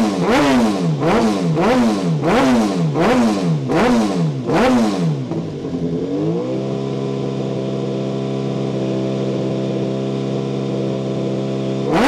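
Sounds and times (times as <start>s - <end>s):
race car engine idling: 5.1s - 11.9s.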